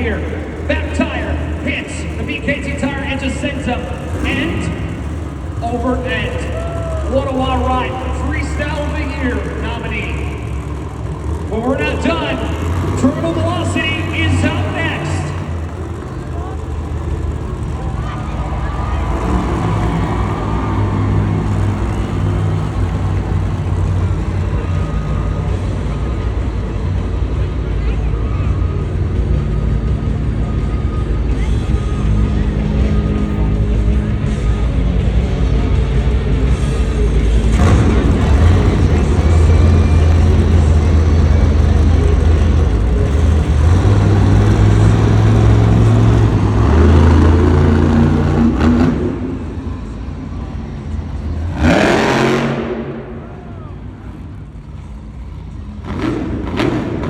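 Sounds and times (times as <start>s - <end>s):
truck engine droning: 0.0s - 57.0s.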